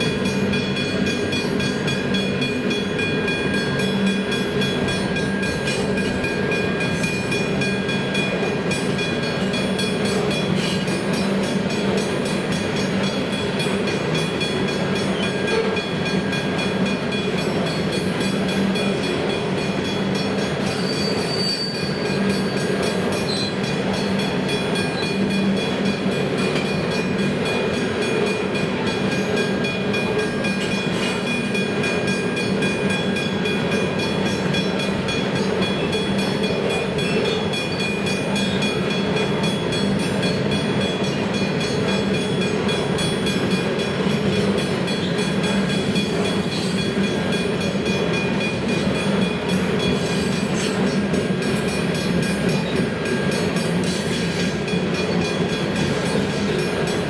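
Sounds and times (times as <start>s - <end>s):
freight wagons rolling on rails: 0.0s - 57.0s.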